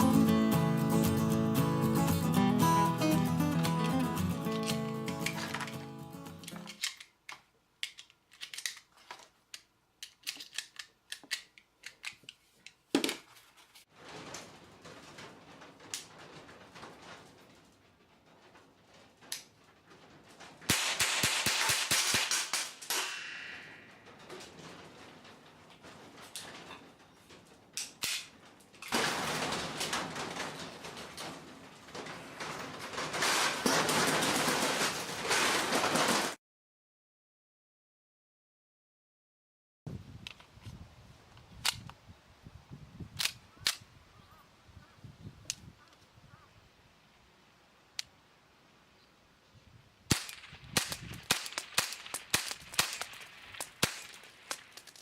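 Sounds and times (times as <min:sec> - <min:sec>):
cap gun shots: 0:20.7 - 0:23.7, 0:50.1 - 0:55.0.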